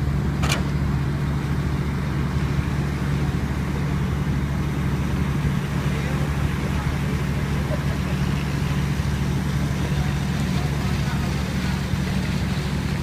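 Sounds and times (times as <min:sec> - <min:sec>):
motor engine humming: 0:00.0 - 0:13.0.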